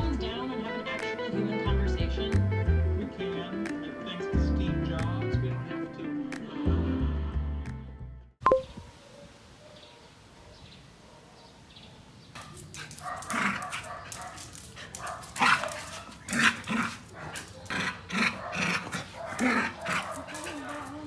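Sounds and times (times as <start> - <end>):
dog barking and yipping: 8.8 - 21.0.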